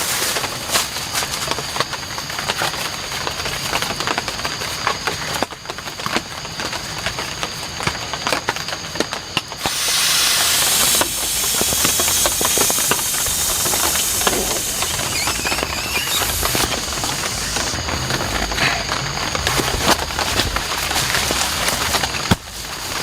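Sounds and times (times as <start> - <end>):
heavy rain hissing: 0.0 - 1.6, 9.5 - 23.0
rain drops tapping: 0.3 - 23.0.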